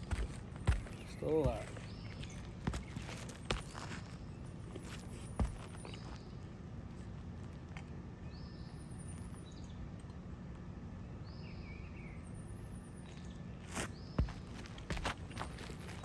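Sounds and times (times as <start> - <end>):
birds chirping: 0.0 - 7.2, 13.0 - 16.0
low outdoor rumble: 0.0 - 16.0.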